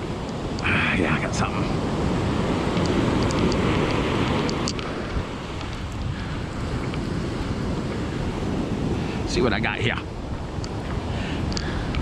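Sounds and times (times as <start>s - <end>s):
ocean surf washing: 0.0s - 12.0s
wind buffeting microphone: 0.0s - 12.0s
faint ticks: 2.7s - 4.9s, 10.6s - 12.0s.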